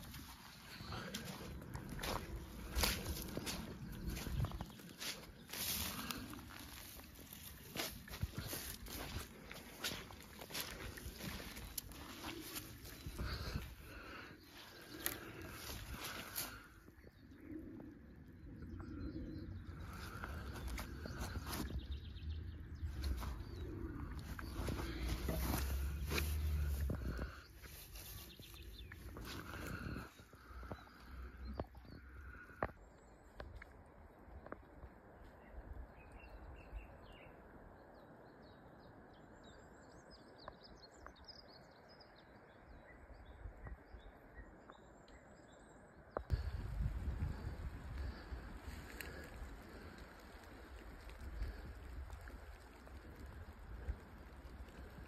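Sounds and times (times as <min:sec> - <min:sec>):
songbirds chirping: 0:00.0 - 0:55.0
steady low rumble: 0:17.2 - 0:32.4, 0:46.3 - 0:55.0.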